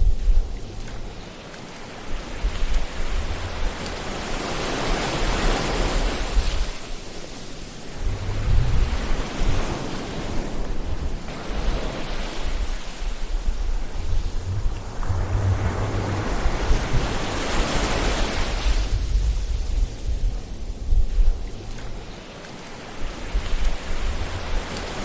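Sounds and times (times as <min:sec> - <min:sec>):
ocean waves washing in: 0:00.0 - 0:25.0.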